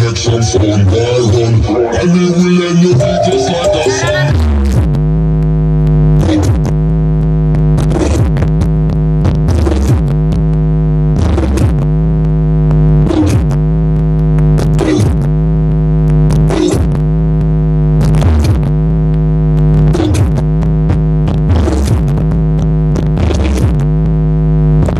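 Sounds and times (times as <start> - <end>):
synthesizer pitch sweep: 0.0 - 5.3
deep synthesizer bass music: 0.0 - 24.9.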